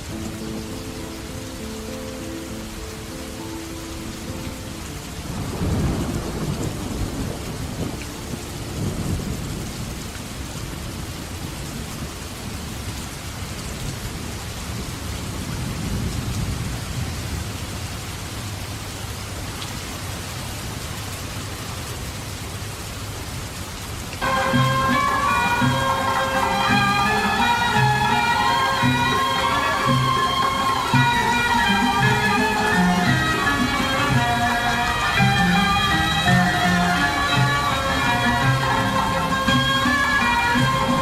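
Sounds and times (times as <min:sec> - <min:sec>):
steady rain: 0:00.0 - 0:41.0
thunder rolling: 0:05.2 - 0:10.0.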